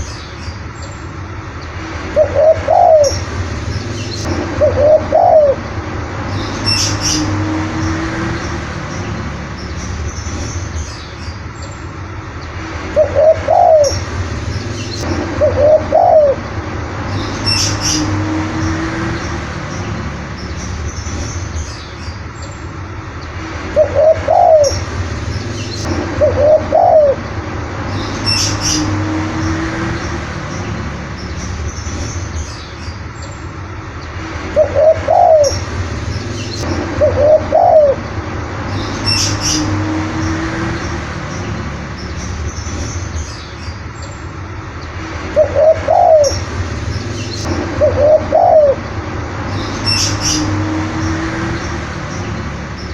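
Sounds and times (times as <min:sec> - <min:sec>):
small birds chirping: 0:00.0 - 0:52.9
dove cooing: 0:02.1 - 0:03.2, 0:04.6 - 0:05.6, 0:13.0 - 0:14.0, 0:15.4 - 0:16.4, 0:23.8 - 0:24.8, 0:26.2 - 0:27.2, 0:34.6 - 0:35.6, 0:37.0 - 0:38.0, 0:45.4 - 0:46.4, 0:47.8 - 0:48.8.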